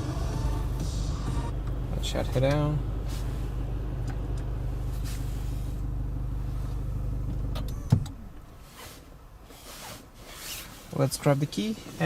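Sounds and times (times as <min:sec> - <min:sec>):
car engine idling: 0:00.0 - 0:08.6.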